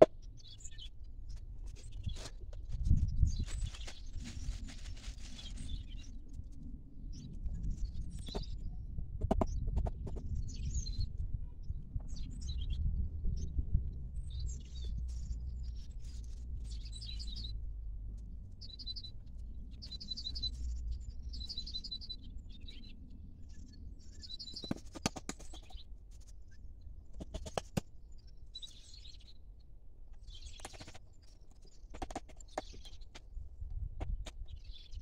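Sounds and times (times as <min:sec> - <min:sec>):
small birds chirping: 0:07.1 - 0:13.6, 0:14.2 - 0:17.7, 0:18.5 - 0:35.0.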